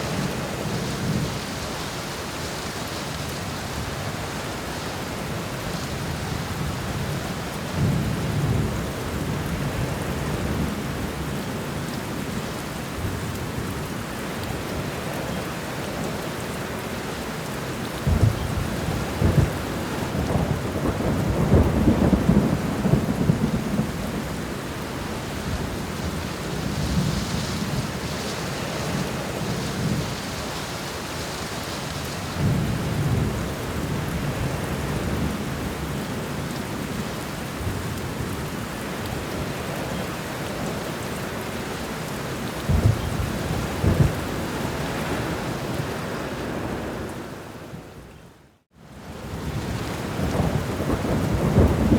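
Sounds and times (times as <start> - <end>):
heavy rain: 0.0 - 51.9
rolling thunder: 18.0 - 24.6, 42.6 - 45.7, 49.4 - 51.9
sharp thunder claps: 50.2 - 51.9.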